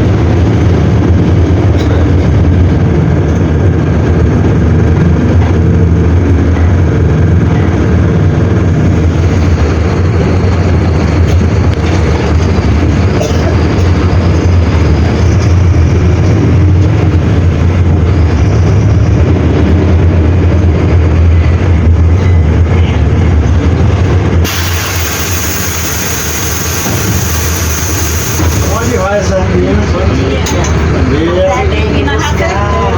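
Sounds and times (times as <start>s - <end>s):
diesel engine droning: 0.0s - 32.9s
high hiss: 24.4s - 29.1s.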